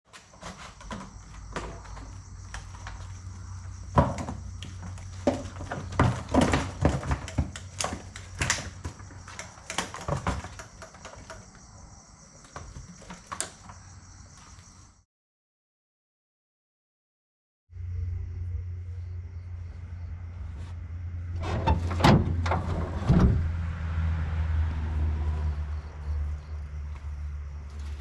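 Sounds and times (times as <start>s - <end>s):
night insects chirring: 0.1s - 15.0s, 17.7s - 21.3s, 23.7s - 28.0s
irregular knocks and clatters: 0.2s - 11.6s.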